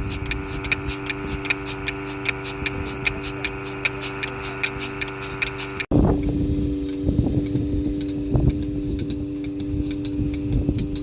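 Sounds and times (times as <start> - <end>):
wind rumbling on microphone: 0.0 - 1.6, 5.9 - 11.0
engine running: 0.0 - 11.0.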